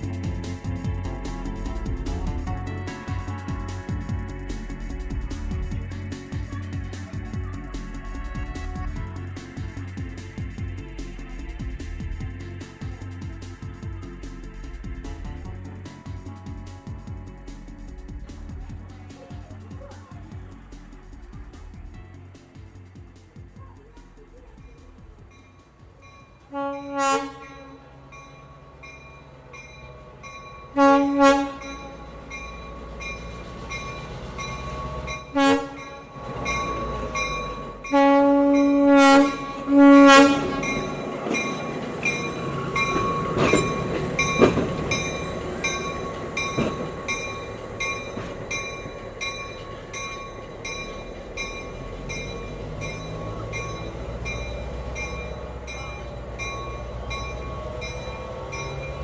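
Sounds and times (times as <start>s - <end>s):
train rolling on track: 0.0s - 59.0s
train horn blasts: 26.4s - 28.8s, 29.6s - 33.2s, 34.2s - 49.0s
sharp clacks of wheels: 40.2s - 59.0s.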